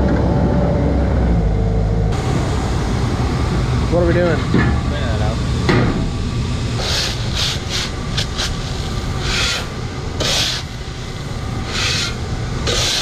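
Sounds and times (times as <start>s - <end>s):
low engine hum: 0.0s - 13.0s
scraping strokes on floor: 9.2s - 10.7s, 11.7s - 13.0s.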